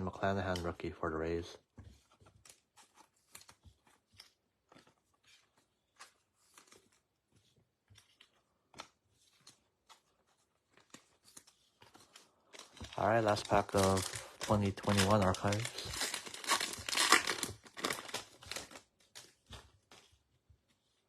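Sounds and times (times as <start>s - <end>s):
foil wrapper rustling: 9.5s - 20.2s.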